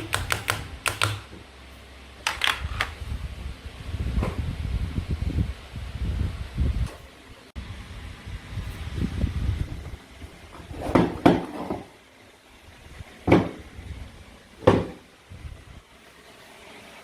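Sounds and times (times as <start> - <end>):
sharp plastic clacks: 0.0 - 1.3, 2.2 - 3.0.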